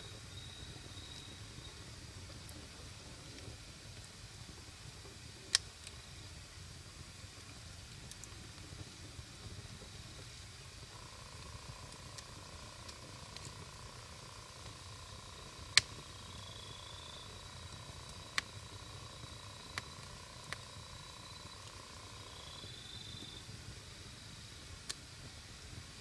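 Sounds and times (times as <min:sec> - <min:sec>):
campfire burning: 0:00.0 - 0:26.0
logs popping: 0:15.4 - 0:16.1.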